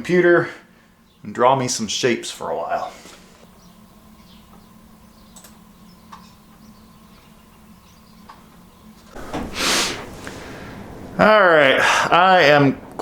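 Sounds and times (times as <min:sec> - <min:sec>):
steady low hum: 0:00.0 - 0:13.0
loud rush of broad noise: 0:09.2 - 0:13.0.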